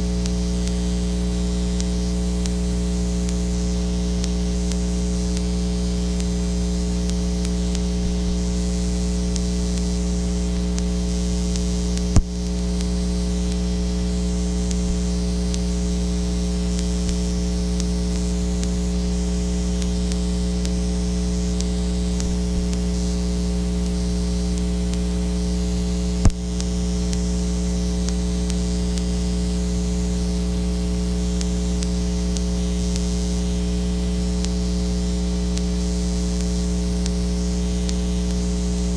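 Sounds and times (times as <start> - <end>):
electrical mains hum: 0.0 - 38.9
sharp clicks: 12.0 - 12.6.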